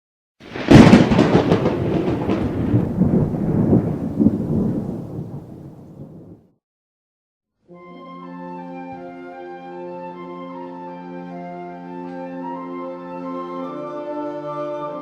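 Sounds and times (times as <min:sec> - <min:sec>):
thunderclap with rumbling: 0:00.4 - 0:06.5.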